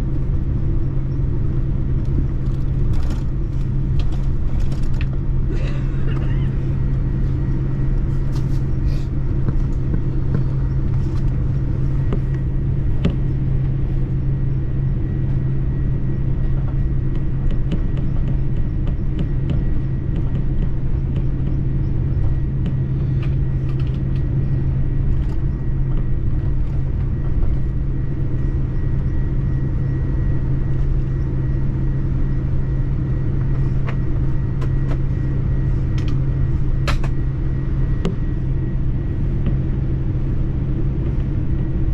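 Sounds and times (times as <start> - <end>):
vehicle rumble from inside: 0.0 - 29.1
constant low hum: 0.0 - 41.9.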